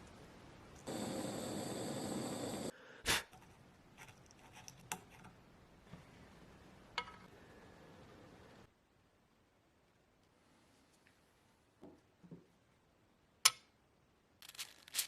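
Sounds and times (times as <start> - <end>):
loud hiss: 0.9 - 3.2.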